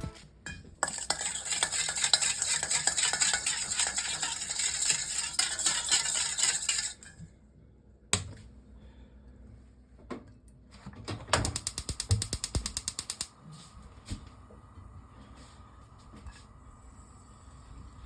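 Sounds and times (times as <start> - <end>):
peppers sizzling in oil: 0.8 - 7.0
utensil scraping a pan: 0.8 - 7.2.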